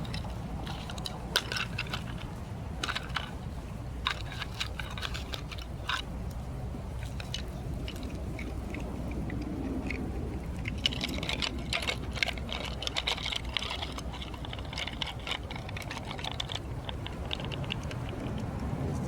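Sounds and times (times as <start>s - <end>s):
small bones clicking: 0.0s - 19.0s
steady low hum: 0.0s - 19.0s.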